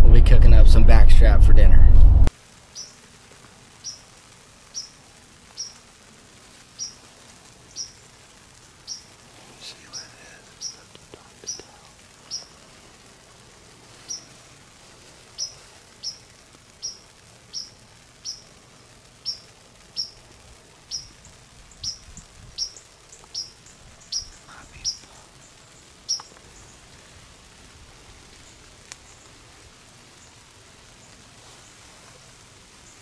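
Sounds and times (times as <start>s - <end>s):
faint steady hiss: 0.0s - 33.0s
small bird chip call: 4.7s - 5.0s, 5.6s - 5.8s, 6.8s - 7.0s, 9.8s - 12.6s, 15.4s - 18.5s, 19.2s - 20.2s, 20.9s - 26.8s.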